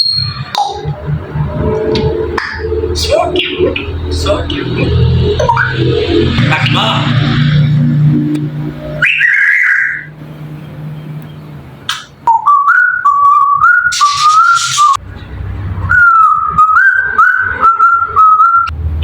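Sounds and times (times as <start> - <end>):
parrot whistling a tune: 0.0 - 0.8, 9.0 - 10.1, 11.9 - 15.0, 15.9 - 18.7.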